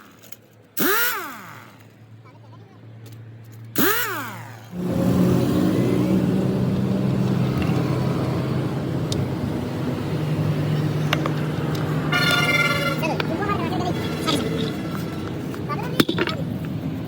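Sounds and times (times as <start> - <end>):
engine running loudly: 3.8 - 17.0.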